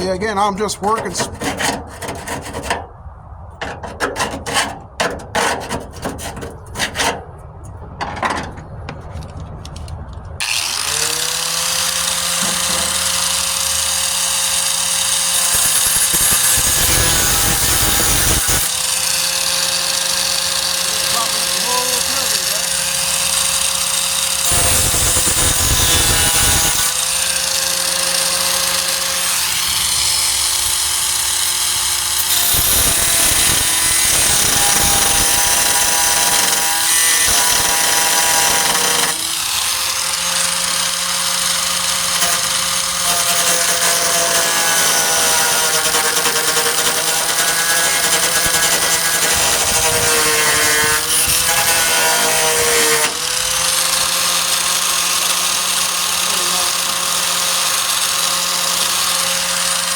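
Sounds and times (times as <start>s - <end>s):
angle grinder grinding sheet steel: 10.4s - 59.9s.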